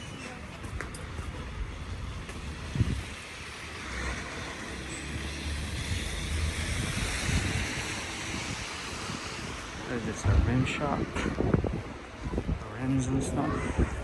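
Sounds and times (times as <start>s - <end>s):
wind rumble on microphone: 0.0s - 3.6s, 5.6s - 14.0s
tyres hissing on wet road: 2.9s - 11.5s.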